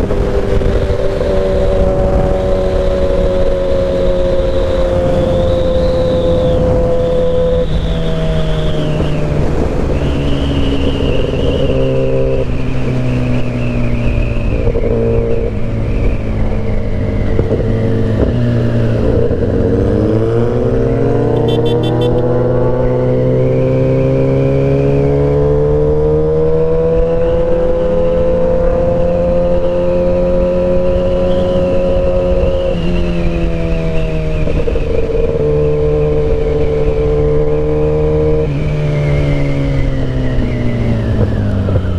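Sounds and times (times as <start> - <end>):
motorcycle engine running: 14.1 - 23.8.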